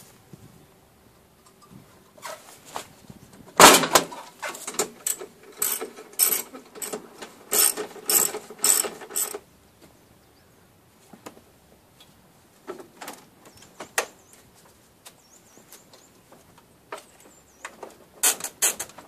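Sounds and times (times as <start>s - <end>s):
hand tool clicking: 4.8s - 9.4s.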